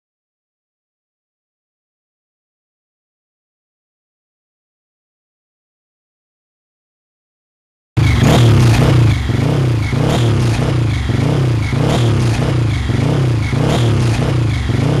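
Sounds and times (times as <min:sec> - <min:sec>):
motorcycle engine running hard: 0:08.0 - 0:15.0.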